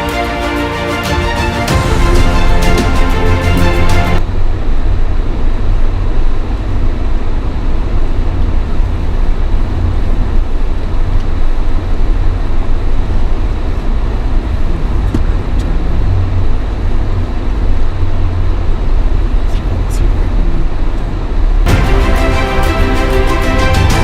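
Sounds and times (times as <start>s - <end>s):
car engine and tyres rumbling: 4.2s - 21.7s.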